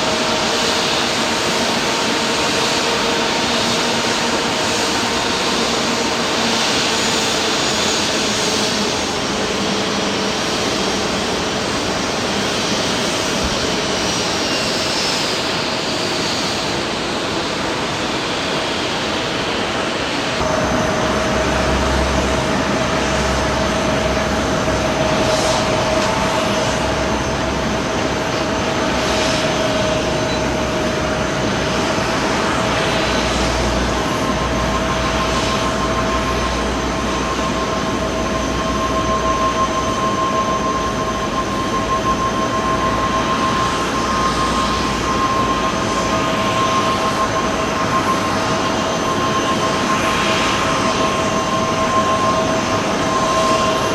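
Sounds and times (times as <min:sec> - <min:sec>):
jet engines rushing and whining: 0:00.0 - 0:53.9.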